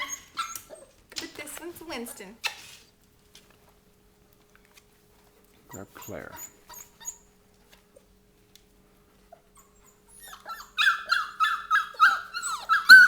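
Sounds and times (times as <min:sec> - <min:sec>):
puppy whining in high yelps: 0:00.0 - 0:01.0, 0:05.7 - 0:07.3, 0:09.5 - 0:13.0.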